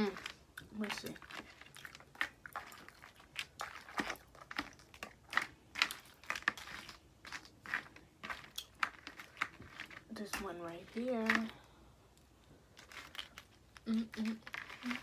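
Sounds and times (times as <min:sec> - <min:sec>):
chewing and mouth sounds: 0:00.0 - 0:10.4
shells cracking and crinkling: 0:00.0 - 0:15.0.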